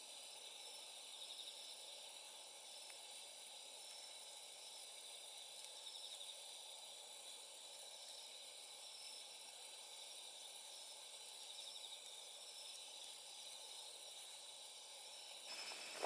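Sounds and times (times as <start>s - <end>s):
night insects trilling: 15.1s - 16.0s
low hiss: 15.5s - 16.0s.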